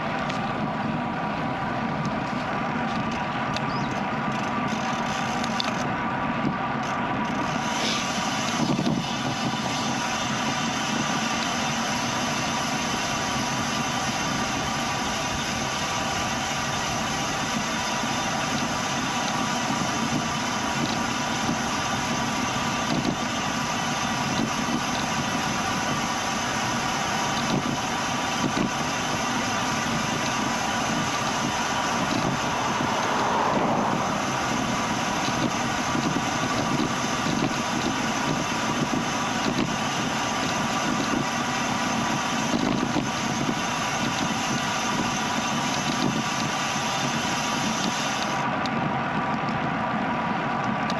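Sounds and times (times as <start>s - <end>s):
bicycle drivetrain whirring: 0.0s - 50.9s
bicycle tyres rolling on pavement: 0.0s - 50.9s.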